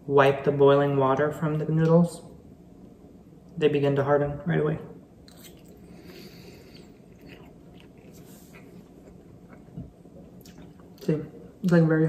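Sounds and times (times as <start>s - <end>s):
wet mouth clicks: 5.3s - 5.8s
faint chewing: 5.3s - 11.1s.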